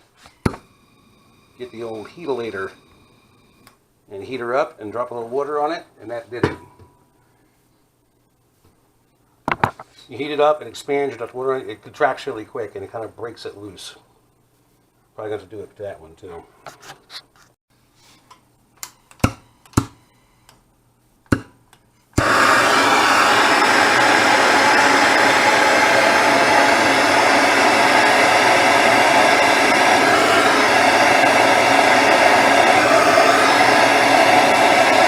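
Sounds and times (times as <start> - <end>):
heat gun blowing: 22.2 - 35.0.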